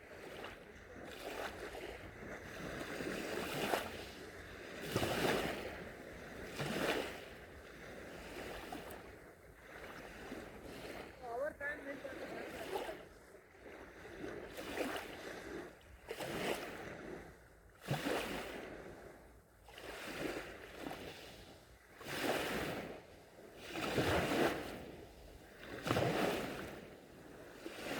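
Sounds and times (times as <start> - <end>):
sea waves washing onto sand: 10.0 - 15.4.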